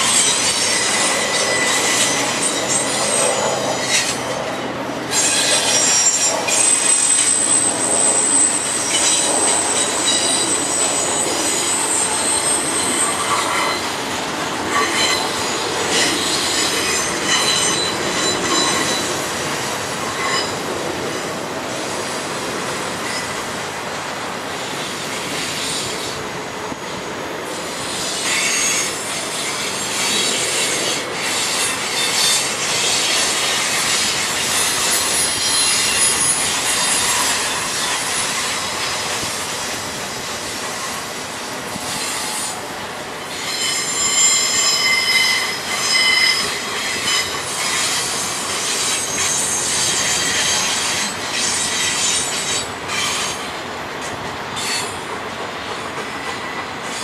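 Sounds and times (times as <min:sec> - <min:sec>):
train wheels squealing on rails: 0:00.0 - 0:57.0.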